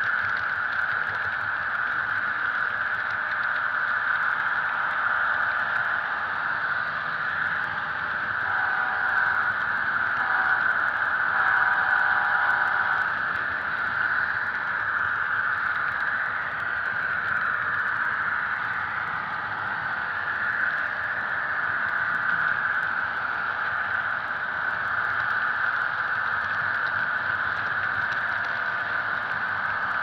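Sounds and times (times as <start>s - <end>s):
model train whirring rattle: 0.0s - 30.0s
model train horn from small speaker: 8.4s - 9.6s, 10.2s - 13.1s.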